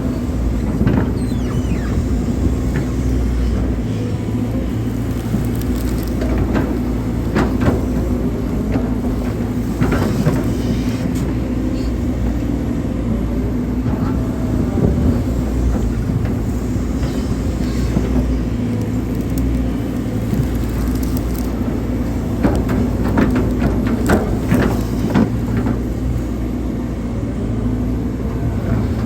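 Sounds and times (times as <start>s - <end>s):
hydraulic whine: 0.0s - 5.7s
excavator diesel engine running: 0.0s - 29.0s.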